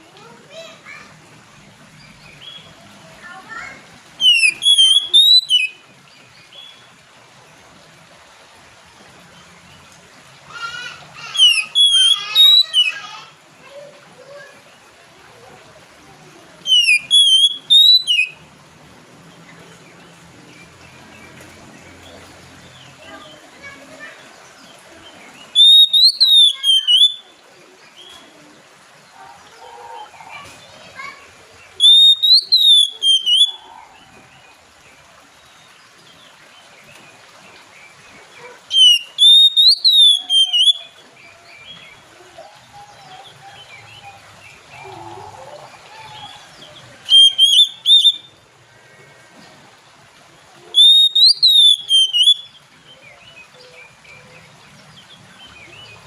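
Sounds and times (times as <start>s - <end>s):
bird whistling calls: 4.2s - 5.8s, 11.3s - 13.0s, 16.6s - 18.4s, 25.5s - 27.2s, 31.8s - 33.7s, 38.7s - 40.9s, 47.0s - 48.4s, 50.8s - 52.6s.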